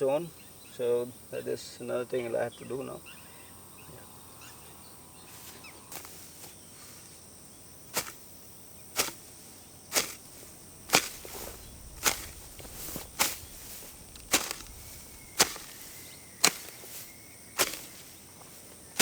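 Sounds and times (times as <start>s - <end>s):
high insect buzz: 0.0s - 19.0s
sharp blows: 9.9s - 18.1s.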